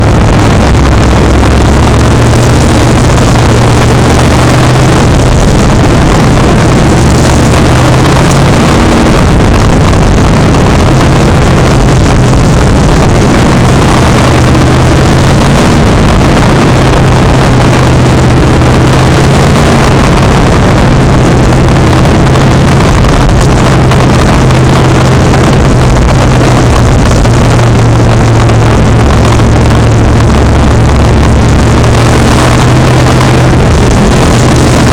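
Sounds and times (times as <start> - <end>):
racing truck engines droning: 0.0 - 34.9.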